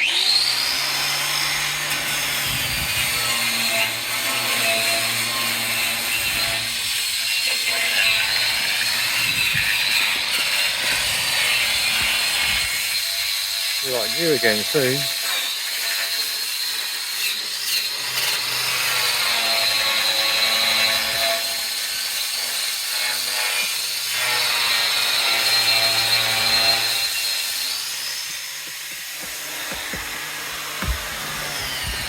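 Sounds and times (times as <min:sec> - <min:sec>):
power tool grinding metal: 0:00.0 - 0:32.0.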